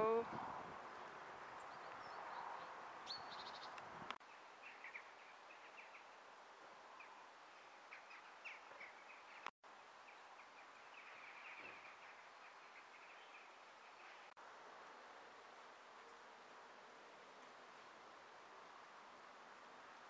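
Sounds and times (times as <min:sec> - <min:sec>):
faint small-bird chirps: 0:10.1 - 0:14.3.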